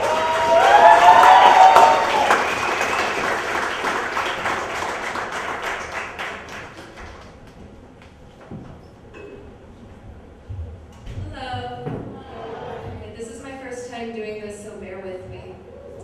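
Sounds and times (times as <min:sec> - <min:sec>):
audience applauding and cheering: 0:00.0 - 0:07.5.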